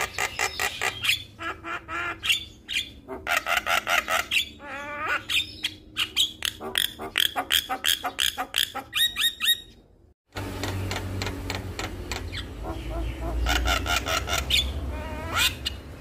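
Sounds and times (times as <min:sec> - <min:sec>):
faint bird calls: 0:10.5 - 0:15.8.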